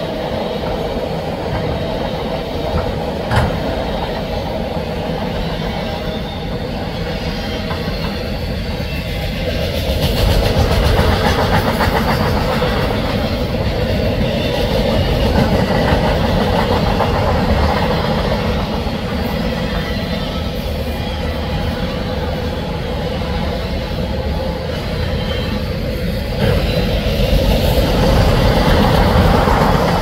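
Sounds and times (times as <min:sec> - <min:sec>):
steel wheels clickety-clack on rails: 0:00.0 - 0:30.0.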